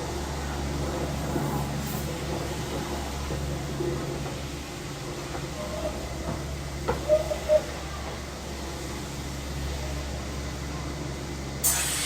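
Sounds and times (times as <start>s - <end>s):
loud hiss: 11.6s - 12.0s.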